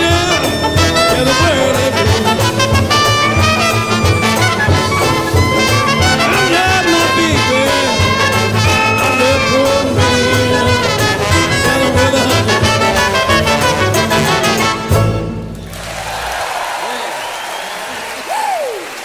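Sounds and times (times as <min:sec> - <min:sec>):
jazz band playing blues: 0:00.0 - 0:16.0.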